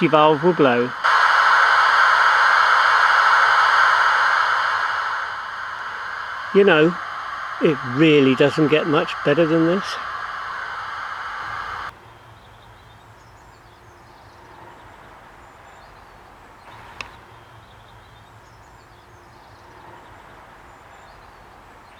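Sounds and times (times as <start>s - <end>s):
steam hiss from speaker: 0.0s - 12.0s, 16.7s - 21.9s
low hum: 0.0s - 15.2s
faint birdsong: 1.8s - 21.9s.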